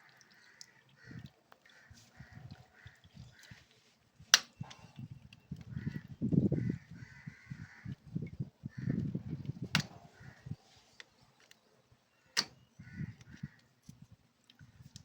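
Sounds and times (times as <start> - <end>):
crows cawing: 0.0 - 3.6, 5.7 - 8.0, 8.6 - 9.2, 10.2 - 10.6, 12.3 - 13.7.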